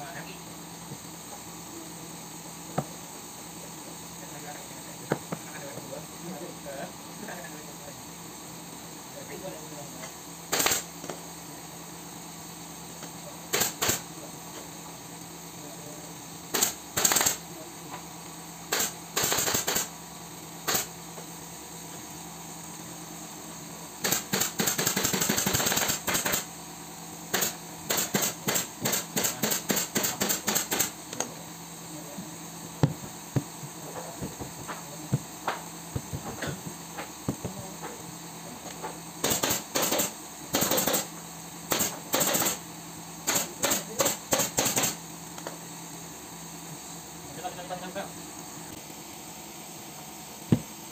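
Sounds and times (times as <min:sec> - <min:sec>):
pneumatic staple gun firing: 0:10.5 - 0:10.9, 0:13.5 - 0:14.0, 0:16.5 - 0:17.4, 0:18.7 - 0:19.9, 0:20.6 - 0:20.9, 0:24.0 - 0:26.5, 0:27.3 - 0:30.9, 0:39.2 - 0:41.1, 0:41.7 - 0:42.6, 0:43.2 - 0:45.0.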